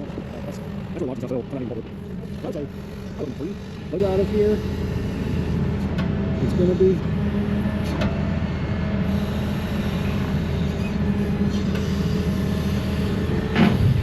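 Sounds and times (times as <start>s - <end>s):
heavy machine engine humming: 0.0s - 14.0s.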